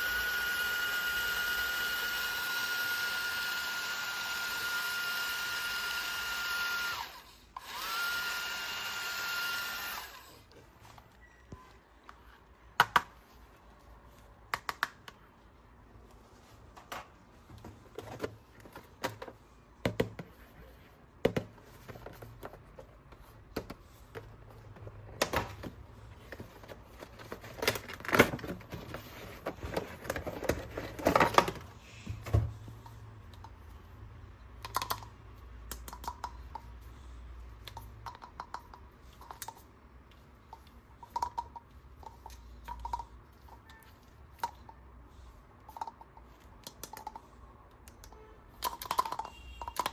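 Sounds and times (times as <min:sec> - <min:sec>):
plastic toy parts clicking: 0:34.6 - 0:35.1, 0:35.7 - 0:36.8, 0:45.7 - 0:49.9.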